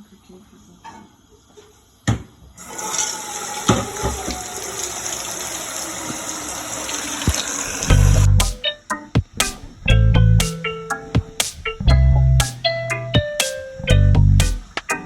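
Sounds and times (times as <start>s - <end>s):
water running from a tap: 2.6s - 8.3s.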